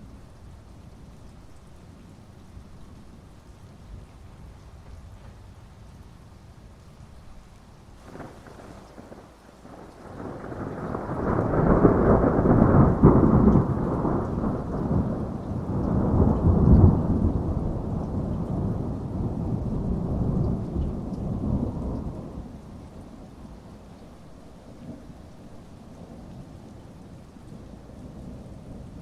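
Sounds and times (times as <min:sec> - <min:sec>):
heavy rain: 0:00.0 - 0:29.0
thunder rolling: 0:08.0 - 0:22.4.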